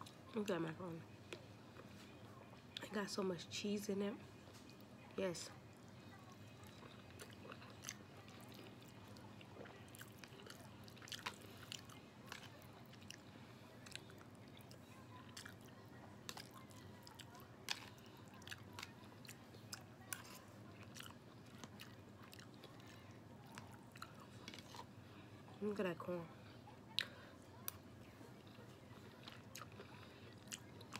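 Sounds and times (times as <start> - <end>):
person chewing food: 6.6 - 25.0, 26.9 - 30.9.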